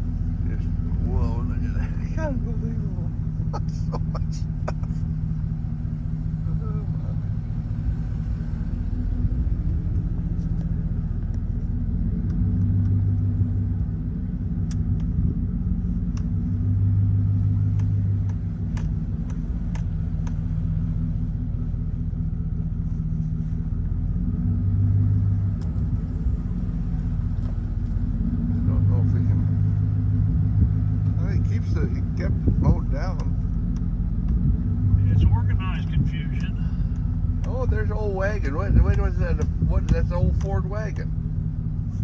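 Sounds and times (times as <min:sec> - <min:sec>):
vehicle engine running: 0:00.0 - 0:42.0.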